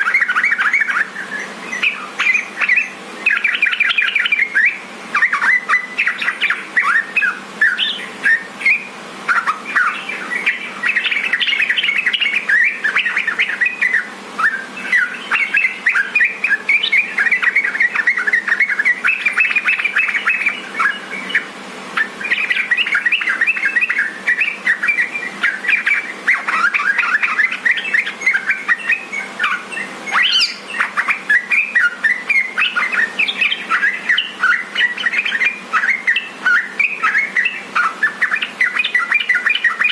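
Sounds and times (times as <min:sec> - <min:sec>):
bulbul chirping and chattering: 0:09.3 - 0:39.9.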